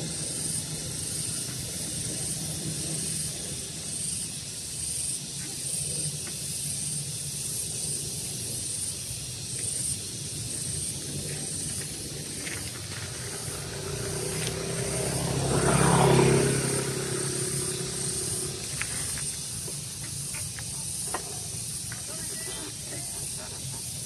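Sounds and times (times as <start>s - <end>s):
motor vehicle passing by: 0.0s - 5.4s, 7.9s - 24.0s
high outdoor background hiss: 0.0s - 24.0s.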